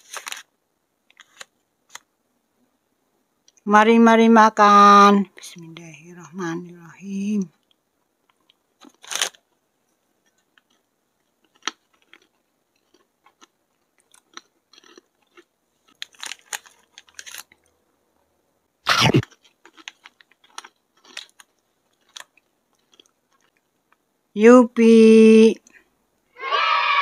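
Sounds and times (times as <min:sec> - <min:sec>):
crunchy biscuits being chewed: 0:07.6 - 0:17.8, 0:19.2 - 0:24.1.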